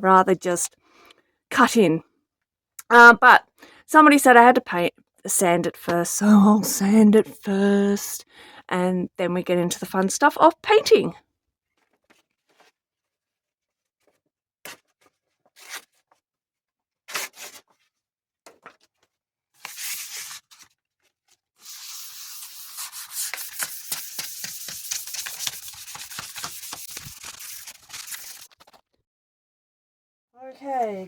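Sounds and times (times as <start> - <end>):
sandpaper sanding strokes: 21.6 - 28.6.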